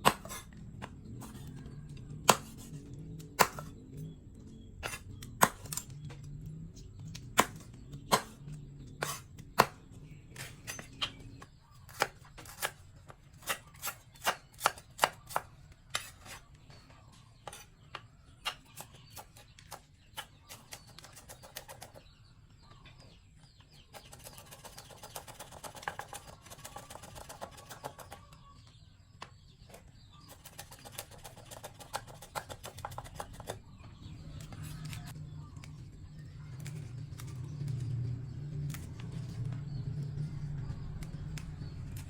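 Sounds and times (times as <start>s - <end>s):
knife chopping on cutting board: 0.0s - 1.4s, 2.2s - 2.7s, 3.4s - 3.7s, 7.3s - 11.2s, 13.4s - 16.4s.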